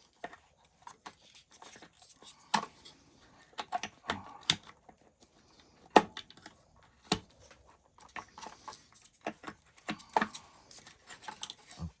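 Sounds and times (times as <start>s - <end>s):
hard plastic parts clicking and knocking: 2.5s - 5.0s, 5.9s - 10.5s.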